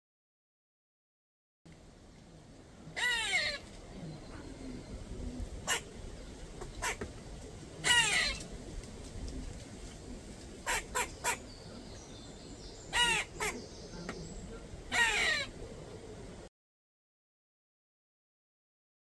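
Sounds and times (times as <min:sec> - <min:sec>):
bird calling: 0:07.8 - 0:08.5, 0:10.6 - 0:16.3.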